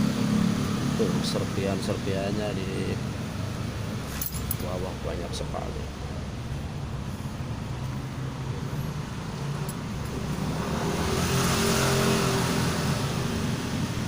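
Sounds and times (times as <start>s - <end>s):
vehicle engine passing by: 7.0s - 14.0s.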